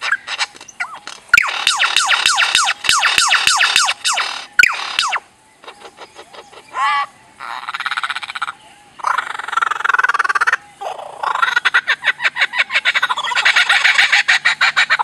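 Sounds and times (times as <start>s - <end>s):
bird rattling calls: 0.0s - 6.8s.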